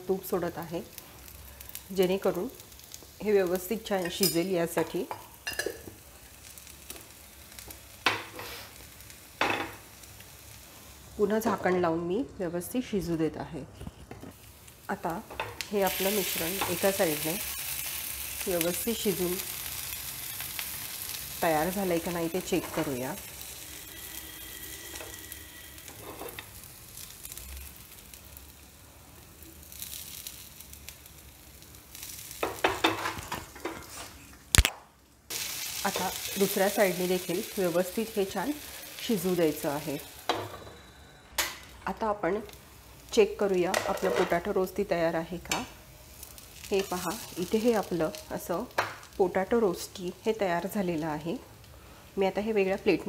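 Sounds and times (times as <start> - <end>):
potato frying sizzle: 0.0 - 53.0
wooden spatula scraping a pan: 23.8 - 26.5.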